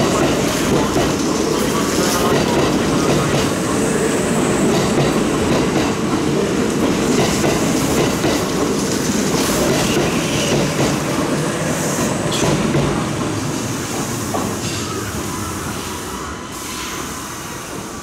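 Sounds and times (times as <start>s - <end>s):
train wheels rumbling and clicking: 0.0s - 3.7s, 4.4s - 14.8s.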